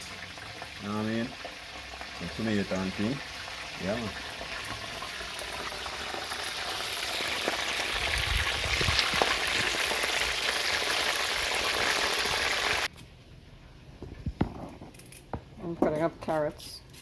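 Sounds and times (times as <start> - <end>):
food sizzling in hot oil: 0.0 - 12.9
oil popping and crackling: 0.0 - 12.9.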